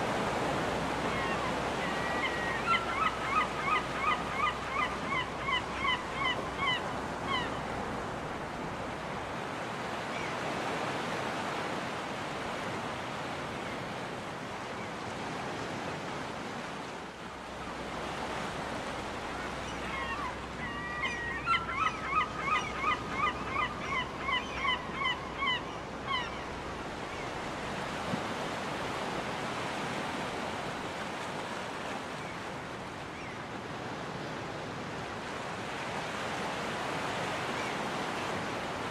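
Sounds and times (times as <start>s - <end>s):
ocean surf washing onto beach: 0.0s - 2.6s
gull calling: 1.1s - 7.6s, 19.6s - 26.5s.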